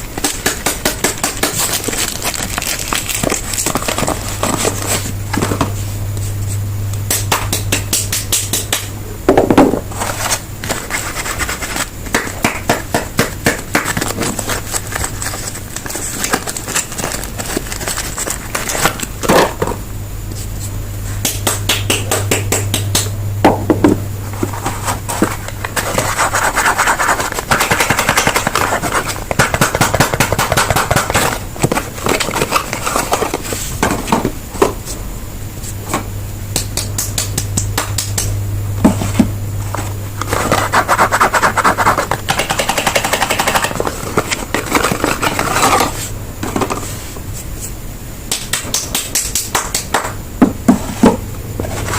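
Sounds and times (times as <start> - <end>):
packaging crinkling: 0.0 - 5.6, 13.8 - 19.1
low steady hum: 0.0 - 51.9
scraping and rubbing: 9.8 - 12.0, 24.2 - 29.5, 38.9 - 47.8, 50.8 - 51.9.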